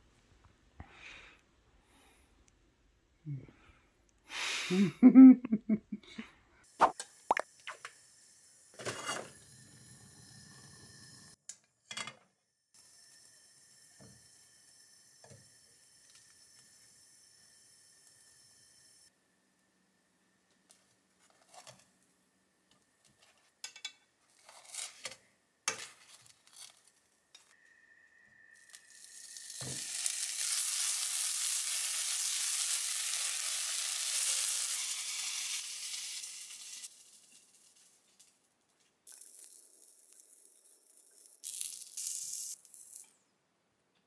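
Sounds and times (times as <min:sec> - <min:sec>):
food sizzling in a pan: 0:06.8 - 0:11.4, 0:12.8 - 0:19.1, 0:28.5 - 0:38.4.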